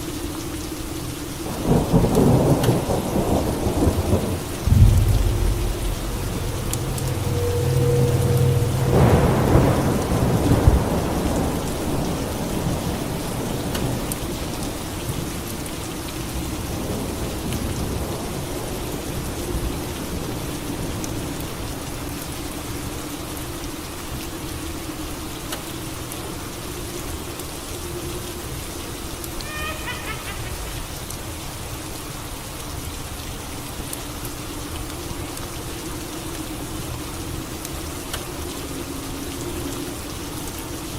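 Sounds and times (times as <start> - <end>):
steady rain falling: 0.0 - 40.9
thunderclap rumbling: 1.6 - 13.5.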